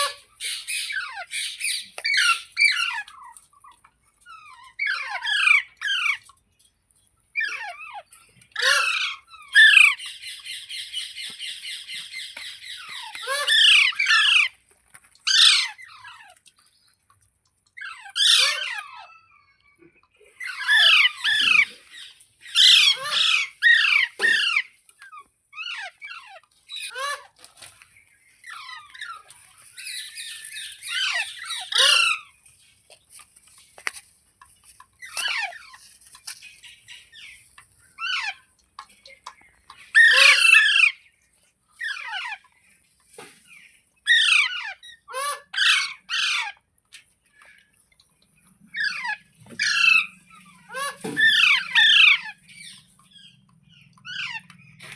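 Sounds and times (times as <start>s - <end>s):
parrot squawking: 0.0s - 3.2s, 7.4s - 10.1s, 12.6s - 14.5s, 15.3s - 16.3s, 17.8s - 19.4s, 20.4s - 21.8s, 22.5s - 24.7s, 25.6s - 27.4s, 30.8s - 32.3s, 39.9s - 41.0s, 44.1s - 46.6s, 48.7s - 54.9s.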